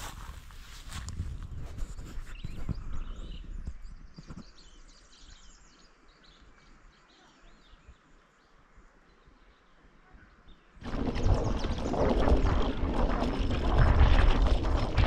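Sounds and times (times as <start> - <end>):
birds chirping: 1.8 - 12.4
low rumble: 10.8 - 15.0.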